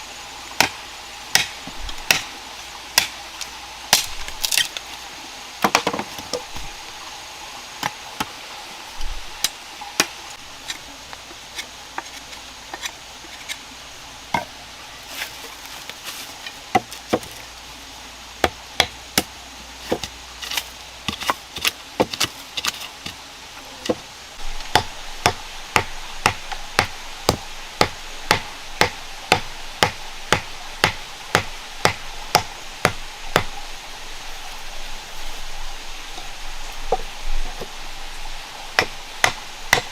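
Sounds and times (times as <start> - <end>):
blade chopping wood: 16.7 - 17.4, 18.4 - 23.2, 38.8 - 39.9.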